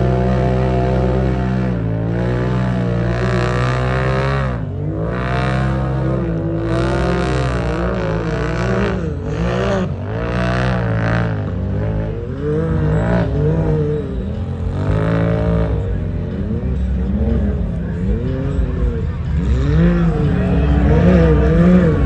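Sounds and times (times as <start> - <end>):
off-road vehicle engines revving: 0.0 - 22.0.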